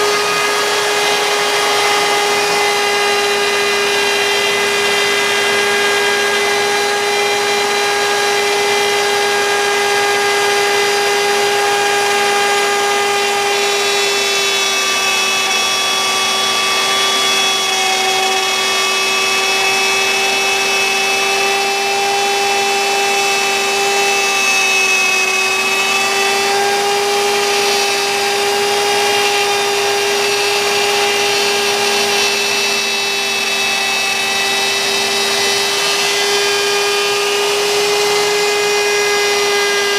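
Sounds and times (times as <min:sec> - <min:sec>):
router spindle whining cutting wood: 0:00.0 - 0:39.9.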